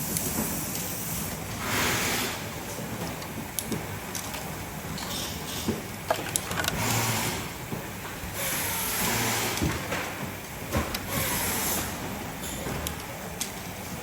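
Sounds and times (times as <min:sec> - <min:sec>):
small parts clicking and knocking: 0:05.0 - 0:06.8.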